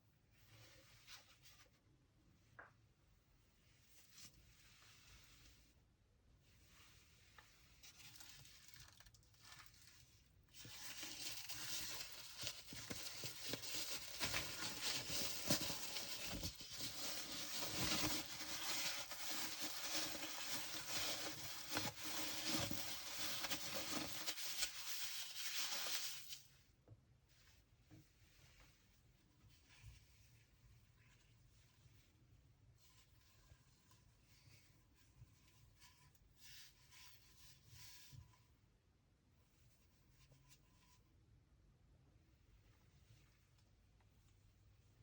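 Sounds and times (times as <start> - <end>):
plastic and paper rustling: 7.8 - 26.5.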